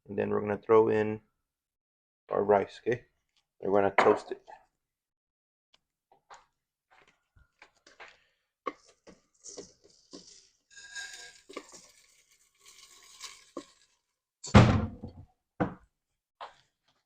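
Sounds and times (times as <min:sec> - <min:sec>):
rice sizzling in hot oil: 0:09.4 - 0:14.0.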